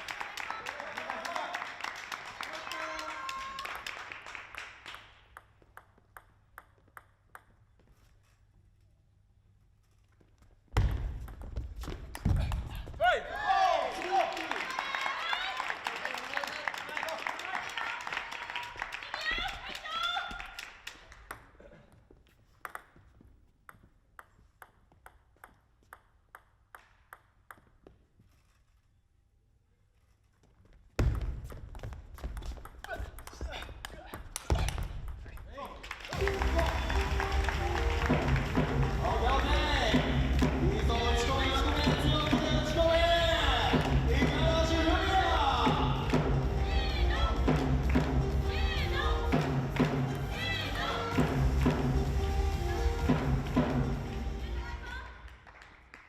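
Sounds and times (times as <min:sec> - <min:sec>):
table tennis ball bouncing: 0:05.2 - 0:07.9, 0:10.8 - 0:12.6, 0:22.6 - 0:28.0, 0:31.0 - 0:40.6
table tennis ball clicking: 0:05.3 - 0:07.8, 0:22.6 - 0:23.0, 0:23.7 - 0:28.0
crowd noise: 0:36.1 - 0:55.2.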